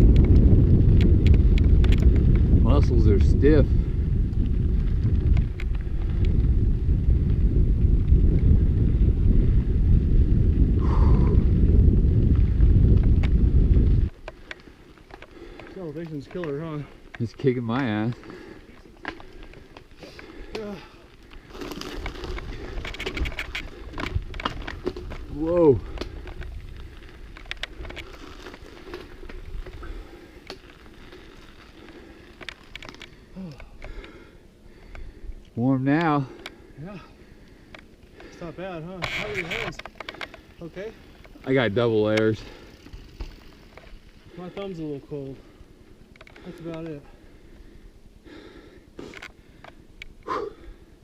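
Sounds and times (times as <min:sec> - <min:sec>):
wind buffeting microphone: 0:00.0 - 0:35.6
mountain bike rumble on trail: 0:00.0 - 0:51.0
tyres clicking and rattling on stones: 0:14.0 - 0:45.4, 0:46.0 - 0:47.3.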